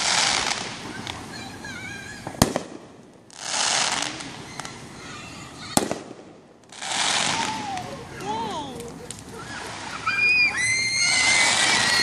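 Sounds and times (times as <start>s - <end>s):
fireworks crackling hiss: 0.0s - 12.0s
firework bang: 2.2s - 4.7s, 5.7s - 7.8s.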